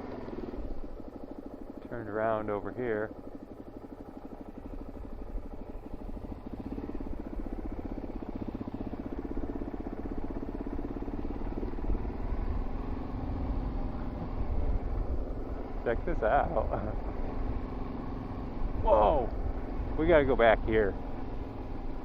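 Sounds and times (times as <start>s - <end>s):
motorcycle engine running: 0.0s - 22.0s
road rumble: 0.0s - 22.0s.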